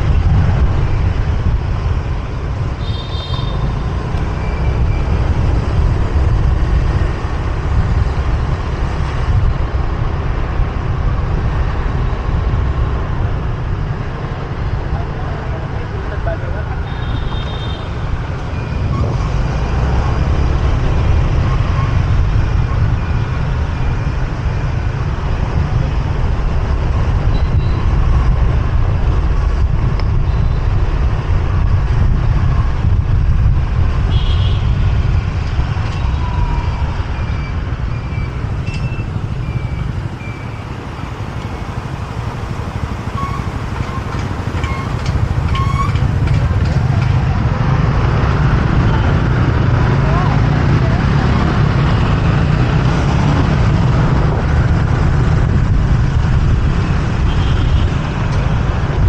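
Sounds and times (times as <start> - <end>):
wind and engines rumbling: 0.0 - 59.0
vehicle horn toots: 2.8 - 3.8, 43.0 - 46.4.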